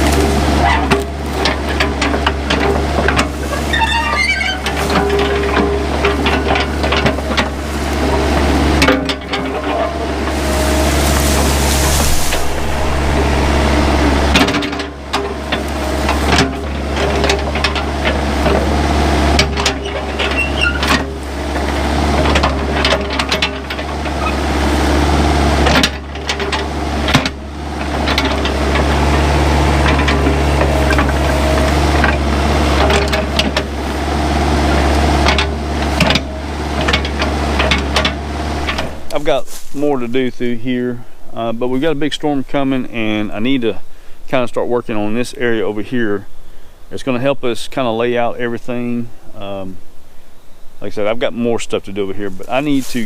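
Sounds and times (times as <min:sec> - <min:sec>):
excavator diesel engine running: 0:00.0 - 0:40.5
sharp cracks and knocks: 0:25.6 - 0:34.1.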